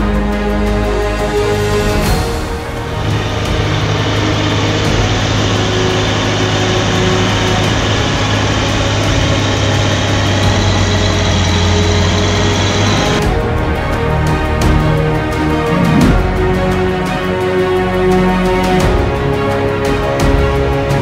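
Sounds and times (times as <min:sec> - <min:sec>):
heavy diesel engine running: 0:02.1 - 0:13.4.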